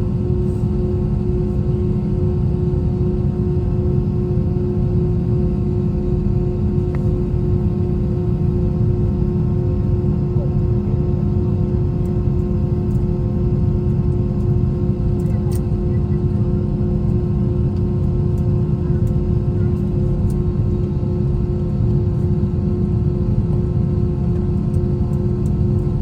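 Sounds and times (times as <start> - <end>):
airplane cabin engine drone: 0.0 - 26.0.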